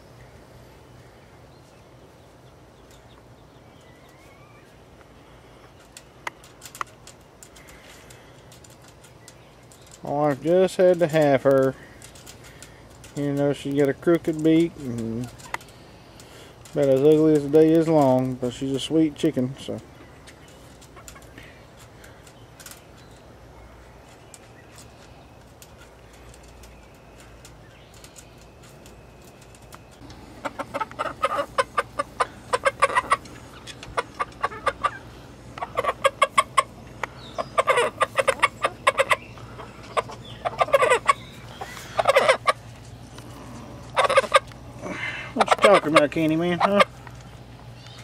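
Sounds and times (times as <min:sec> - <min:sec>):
chicken clucking: 0:30.4 - 0:42.8, 0:43.8 - 0:44.6, 0:45.3 - 0:46.9.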